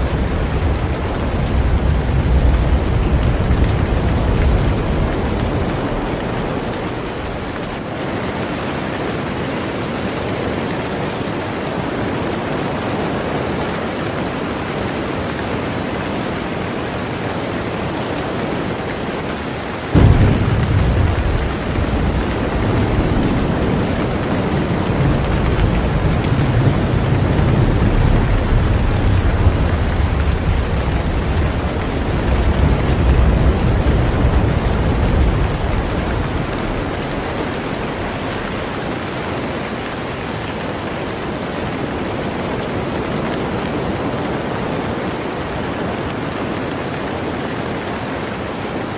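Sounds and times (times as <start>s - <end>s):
thunder clap and rumble: 0.0s - 9.4s, 17.7s - 46.0s
heavy rain on a boat: 0.0s - 48.9s.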